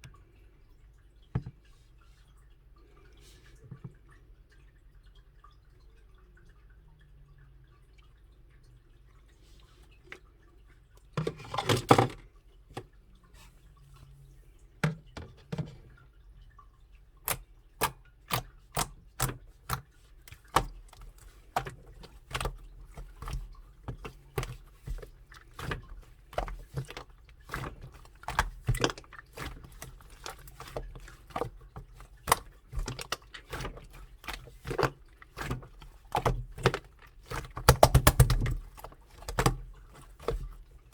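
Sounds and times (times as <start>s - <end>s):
slime squishing: 17.2s - 40.9s.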